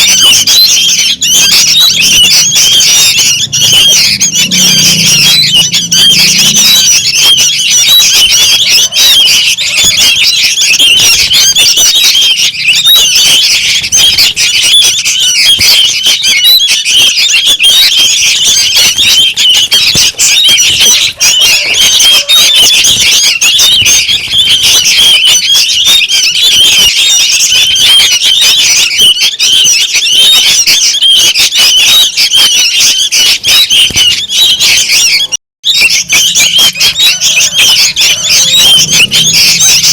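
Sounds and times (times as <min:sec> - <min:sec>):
bird chicks chirping: 0:00.0 - 0:39.9.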